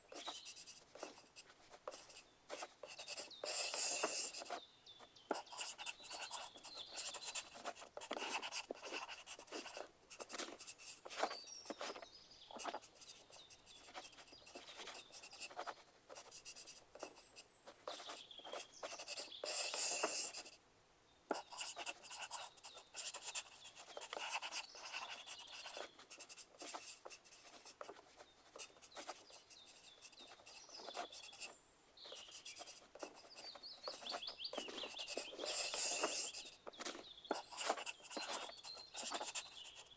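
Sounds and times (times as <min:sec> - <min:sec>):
pencil scratching on paper: 0:00.0 - 0:04.6, 0:05.3 - 0:20.6, 0:21.3 - 0:39.9
pencil taps: 0:32.2 - 0:39.5.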